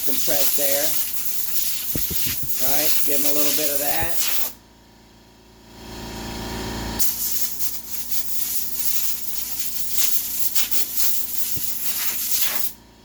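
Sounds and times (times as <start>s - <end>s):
compressed air blow gun hissing: 0.0s - 4.6s, 7.0s - 12.8s.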